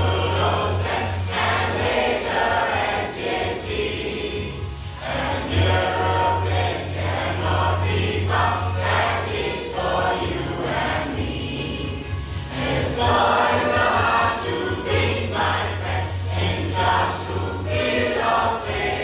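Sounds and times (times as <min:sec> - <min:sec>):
choir singing: 0:00.0 - 0:19.0
musical accompaniment: 0:00.0 - 0:19.0.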